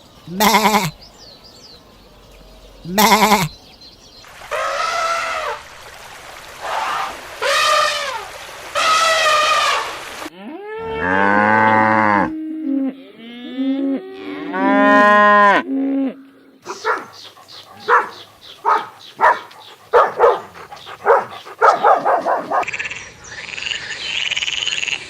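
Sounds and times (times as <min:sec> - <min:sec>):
cows mooing: 0:10.3 - 0:16.2.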